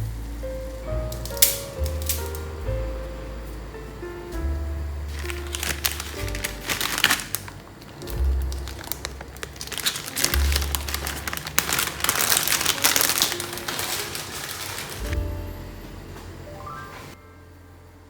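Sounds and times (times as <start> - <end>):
background music with bass note: 0.0 - 18.0
crinkling and crackling: 0.1 - 2.6, 5.1 - 15.3.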